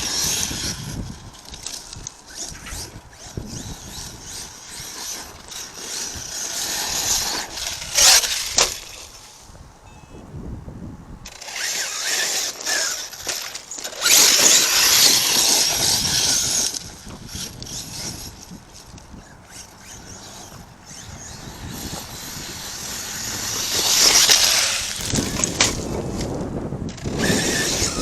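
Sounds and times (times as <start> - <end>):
electric motor whining: 0.0 - 9.2, 11.3 - 28.0
tyres churning over gravel: 11.3 - 26.4.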